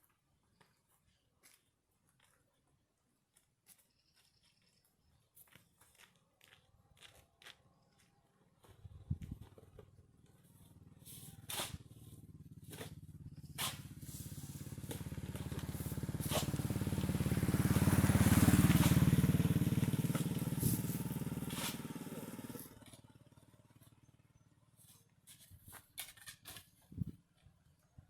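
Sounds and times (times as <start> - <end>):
small engine passing by: 9.4 - 25.2.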